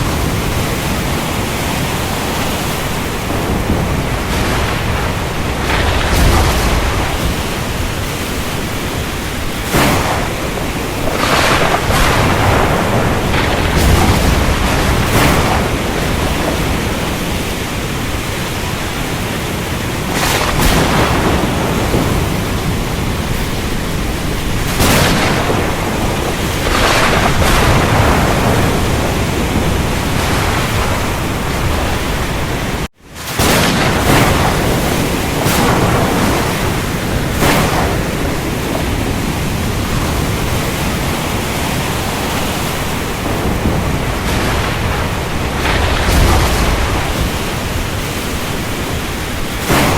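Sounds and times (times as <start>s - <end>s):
heavy rain hiss: 0.0s - 49.9s
thunder rolling: 0.0s - 49.9s.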